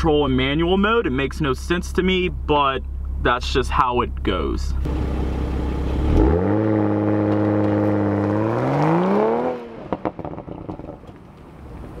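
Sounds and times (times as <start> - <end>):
turbocharged car engine accelerating: 4.8 - 11.1.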